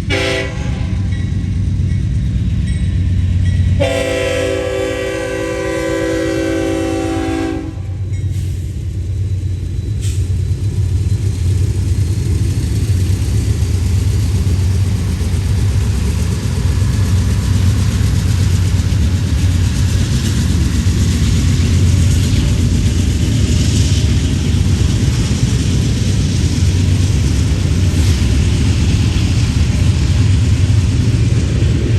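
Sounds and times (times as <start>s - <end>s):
locomotive air horn: 0.0s - 1.1s, 3.8s - 8.1s
freight train rumbling past: 0.0s - 31.9s.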